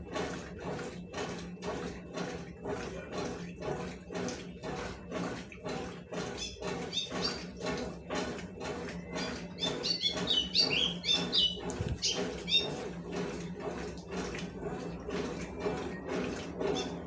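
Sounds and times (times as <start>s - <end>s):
washing machine motor hum: 0.0s - 17.0s
water and wet cloth swishing: 9.2s - 17.0s.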